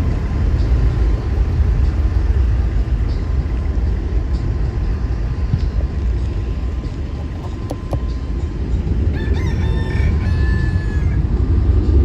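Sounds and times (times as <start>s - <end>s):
steady low rumble: 0.0s - 12.0s
rooster crowing: 9.1s - 11.3s.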